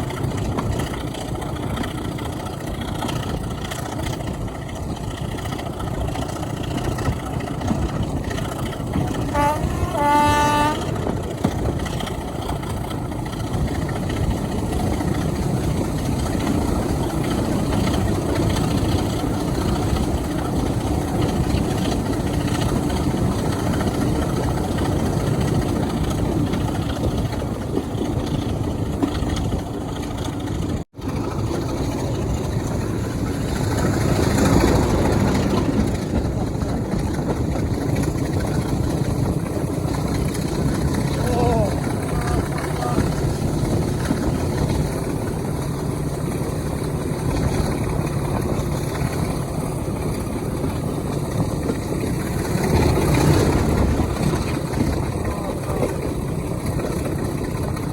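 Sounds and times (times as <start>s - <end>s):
diesel locomotive engine running: 0.0s - 57.9s
locomotive horn blast: 8.9s - 11.5s.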